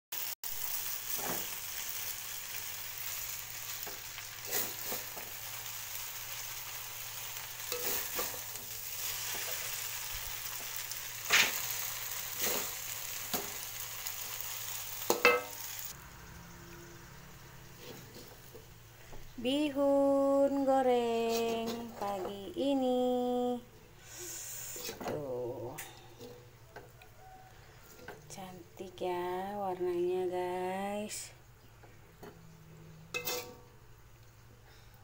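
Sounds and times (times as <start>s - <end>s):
noodles sizzling in a wok: 0.2s - 20.8s, 24.0s - 28.2s, 33.1s - 33.8s
metal utensil scraping a wok: 3.6s - 13.8s, 16.9s - 18.7s, 24.2s - 25.2s, 33.0s - 33.7s.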